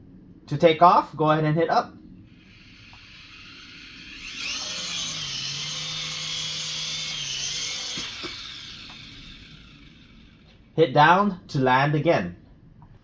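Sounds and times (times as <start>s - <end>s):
rotor blades buzzing: 2.2s - 10.8s
toy helicopter motors whining: 2.2s - 10.8s.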